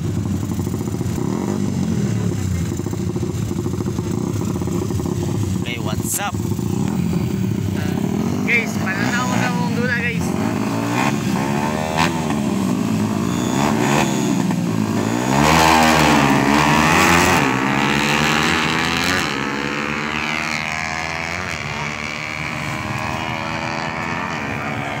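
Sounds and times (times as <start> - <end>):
motorcycle engines revving: 0.0 - 25.0.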